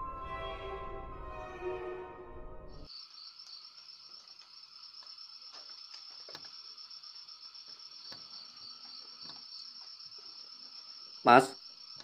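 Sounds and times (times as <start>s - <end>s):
crickets chirring: 2.9s - 12.0s.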